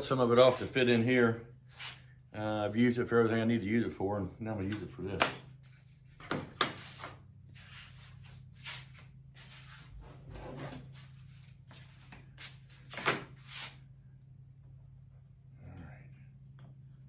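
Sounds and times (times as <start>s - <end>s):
wood and tools scraping and knocking: 4.6s - 13.8s.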